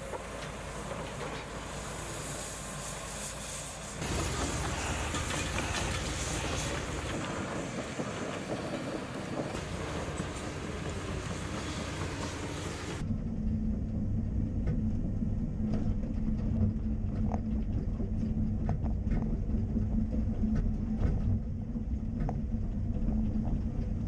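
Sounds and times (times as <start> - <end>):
excavator diesel engine running: 0.0 - 13.0
rushing rumble: 0.0 - 24.0.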